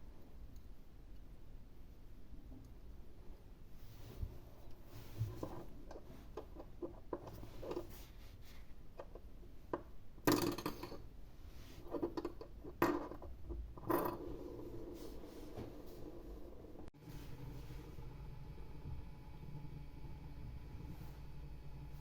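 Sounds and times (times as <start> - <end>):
rustling scrapes: 14.2 - 17.9.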